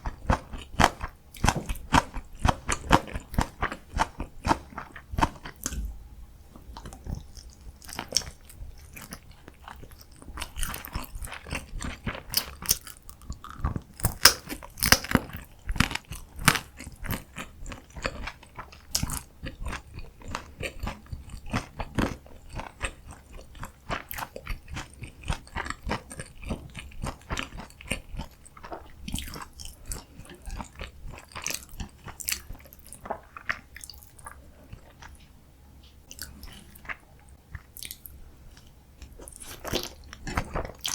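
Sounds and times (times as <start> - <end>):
crunchy chewing of food: 0.0 - 5.9, 6.5 - 40.9.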